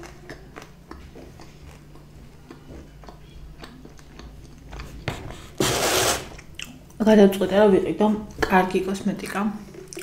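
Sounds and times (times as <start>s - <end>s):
person chewing with mouth closed: 0.0s - 5.6s, 6.3s - 7.0s, 9.6s - 10.0s
low steady hum: 0.0s - 10.0s.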